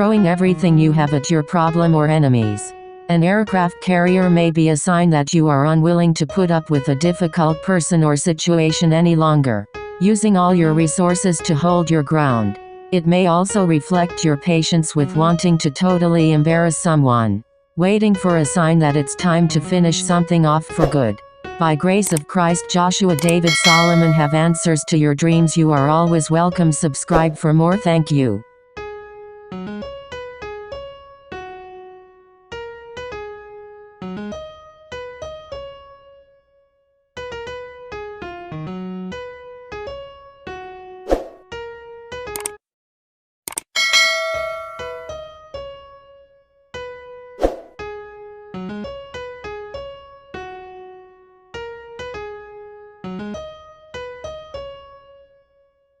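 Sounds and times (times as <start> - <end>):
electric piano melody: 28.8 - 36.3, 37.2 - 42.6, 43.8 - 45.8, 46.8 - 55.4.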